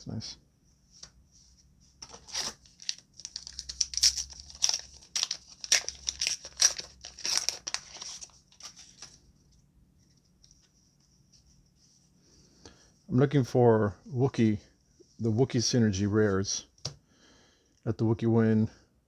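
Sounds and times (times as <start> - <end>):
wrapper crinkling and tearing: 2.0 - 9.2.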